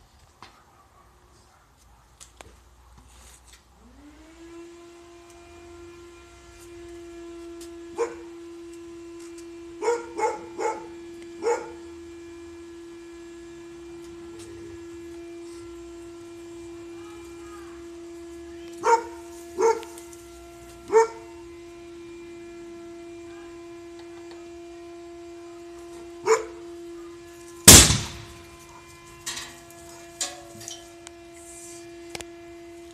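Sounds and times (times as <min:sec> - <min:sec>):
dog barking: 0:00.5 - 0:02.2, 0:08.0 - 0:08.3, 0:09.8 - 0:11.8, 0:18.8 - 0:20.0, 0:20.9 - 0:21.2, 0:26.2 - 0:26.6.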